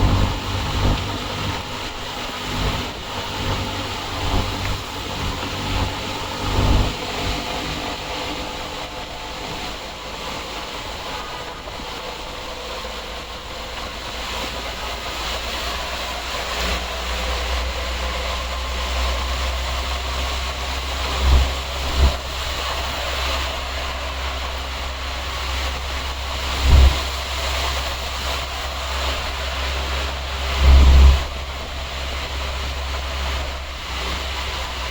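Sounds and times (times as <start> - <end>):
tyres washing through water: 0.0 - 34.9
vehicle engines rumbling: 0.0 - 34.9
low thumps: 21.1 - 28.8.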